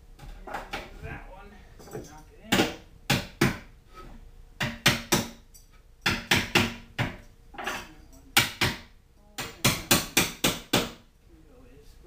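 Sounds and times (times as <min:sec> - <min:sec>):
hammer knocking wedges into wood: 0:02.5 - 0:03.7, 0:04.6 - 0:05.4, 0:06.0 - 0:07.2, 0:08.4 - 0:11.0.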